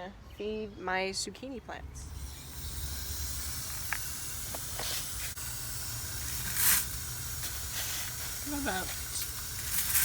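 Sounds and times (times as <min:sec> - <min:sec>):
water running into watering can: 0:02.1 - 0:10.0.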